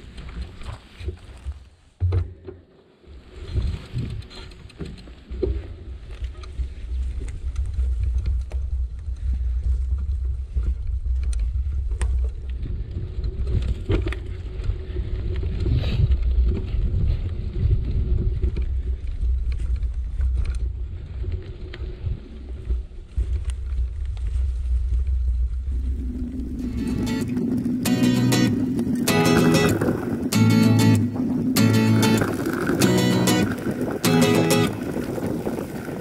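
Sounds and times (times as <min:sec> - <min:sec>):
bicycle tyres on path: 0:00.0 - 0:36.0
wind on microphone: 0:03.1 - 0:36.0.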